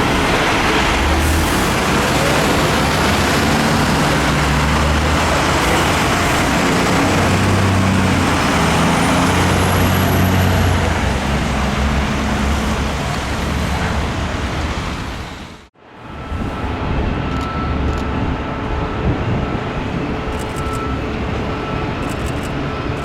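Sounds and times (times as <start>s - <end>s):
diesel engine running: 0.0s - 15.7s.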